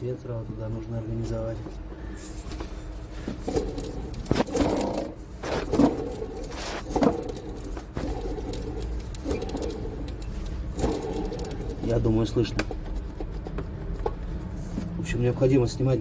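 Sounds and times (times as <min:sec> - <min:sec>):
pulley rattling and scraping: 0:01.3 - 0:14.8.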